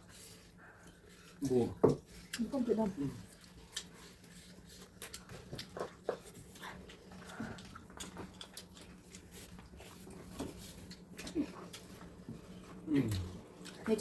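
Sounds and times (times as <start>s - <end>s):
faint steady hum: 0.0s - 14.0s
cutlery clicks and chewing: 4.8s - 9.8s.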